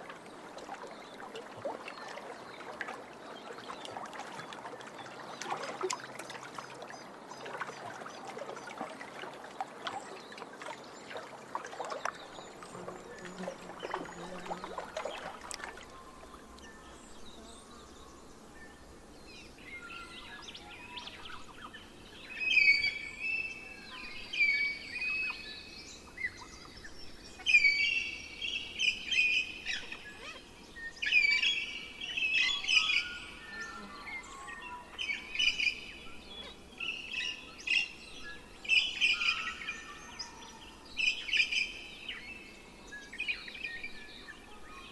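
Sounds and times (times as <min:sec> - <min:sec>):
water splashing and lapping: 0:00.0 - 0:16.4
songbird singing: 0:09.2 - 0:44.9.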